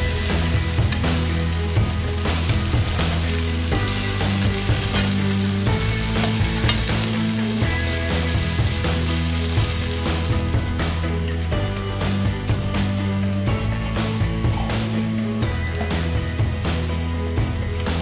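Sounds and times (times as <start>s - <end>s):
background music: 0.0s - 18.0s
onions sizzling in oil: 0.0s - 18.0s.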